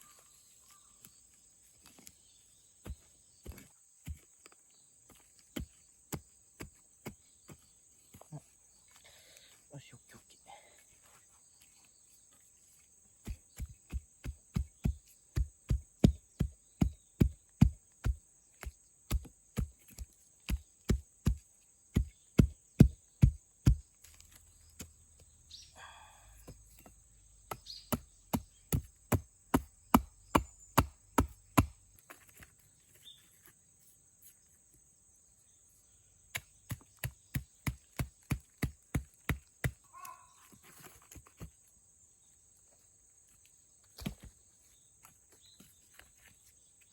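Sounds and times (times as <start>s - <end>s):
chopping wood: 13.2s - 25.0s, 26.4s - 32.3s, 36.3s - 40.2s, 44.0s - 44.4s.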